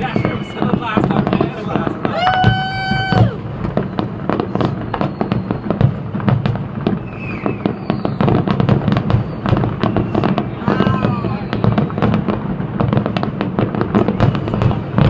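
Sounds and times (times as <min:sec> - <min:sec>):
steady high whistle: 0:00.0 - 0:01.0, 0:04.4 - 0:05.9, 0:07.0 - 0:08.4
fireworks bangs and crackles: 0:00.0 - 0:15.0.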